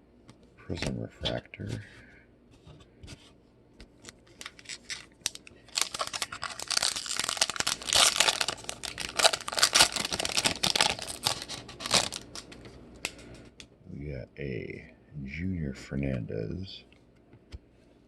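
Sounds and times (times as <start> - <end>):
foil wrapper tearing and crinkling: 4.0 - 12.7.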